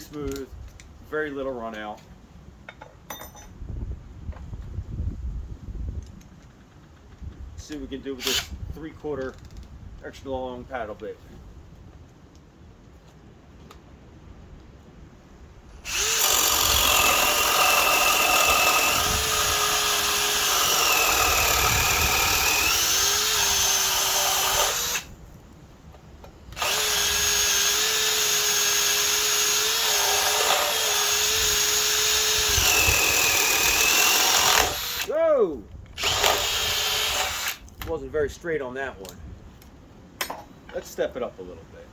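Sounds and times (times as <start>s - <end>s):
cordless drill boring: 8.2s - 8.6s, 15.8s - 25.1s, 26.6s - 35.1s, 36.0s - 37.6s.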